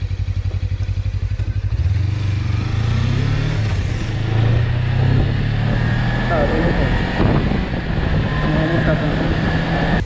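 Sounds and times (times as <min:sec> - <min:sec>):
motorcycle engine pulling: 0:00.4 - 0:10.0.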